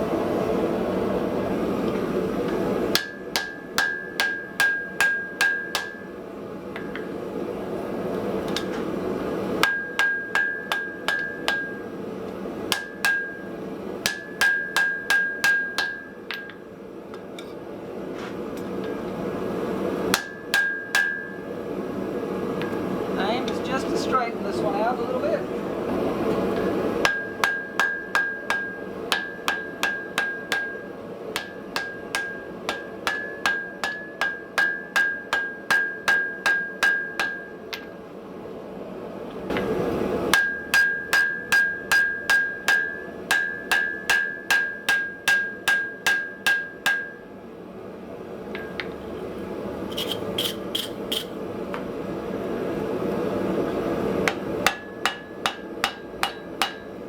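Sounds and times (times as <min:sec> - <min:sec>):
hammer striking iron on anvil: 0:02.9 - 0:07.2, 0:09.6 - 0:12.0, 0:12.7 - 0:17.6, 0:20.1 - 0:21.6, 0:26.6 - 0:37.9, 0:40.3 - 0:47.4, 0:48.5 - 0:49.0, 0:54.2 - 0:57.0.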